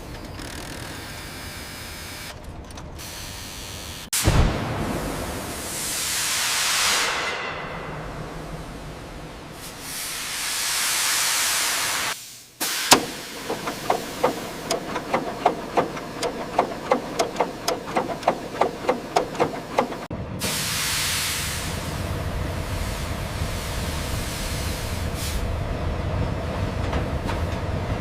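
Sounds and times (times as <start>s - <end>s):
steam hissing: 5.5s - 8.4s, 9.5s - 25.5s
sharp knock: 12.9s - 20.1s
wheels clicking over rail joints: 12.9s - 20.1s.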